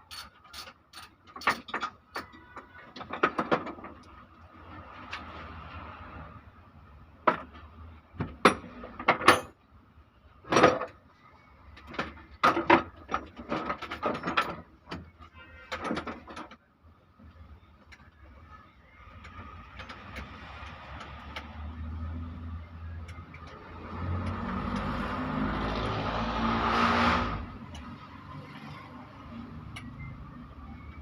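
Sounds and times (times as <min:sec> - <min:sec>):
metal parts and tools clanking: 0:00.0 - 0:04.4, 0:08.4 - 0:09.6, 0:10.5 - 0:11.0, 0:11.8 - 0:16.6, 0:19.0 - 0:21.6.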